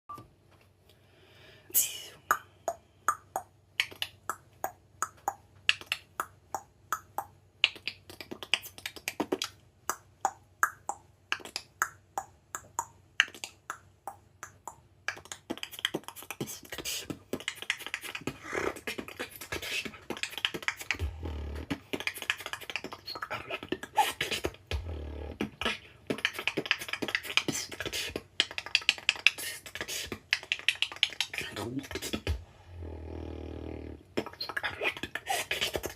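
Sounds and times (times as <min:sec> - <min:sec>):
beatboxing mouth clicks: 0:01.7 - 0:35.9
deep bass thumps: 0:24.7 - 0:25.0, 0:32.3 - 0:32.5.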